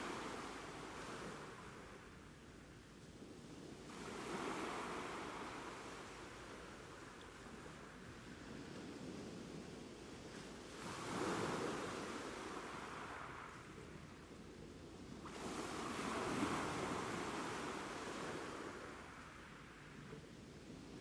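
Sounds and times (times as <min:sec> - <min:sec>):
ocean waves washing onto shore: 0:00.0 - 0:02.6, 0:03.6 - 0:14.3, 0:15.1 - 0:21.0.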